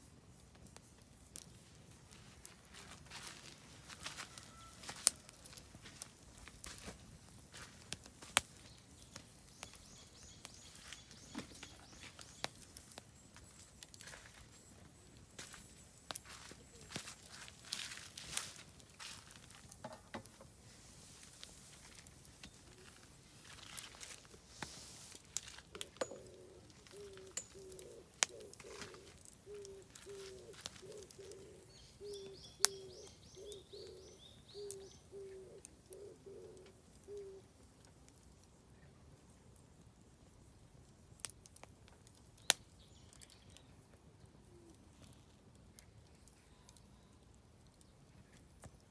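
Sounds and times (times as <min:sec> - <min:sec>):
firewood crackling in campfire: 0:00.0 - 0:48.9
fire pops: 0:05.5 - 0:10.6
small bird singing: 0:08.6 - 0:18.0, 0:25.8 - 0:37.4, 0:42.4 - 0:44.9
dove cooing: 0:25.9 - 0:37.5
small bird singing high notes: 0:26.2 - 0:35.0.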